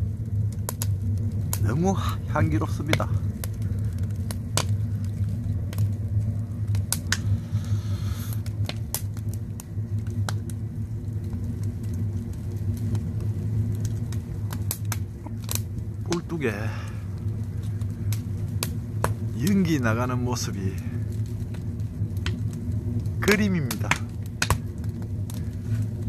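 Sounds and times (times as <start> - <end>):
fire hiss: 0.0 - 26.0
wood fire crackling and popping: 0.0 - 26.0.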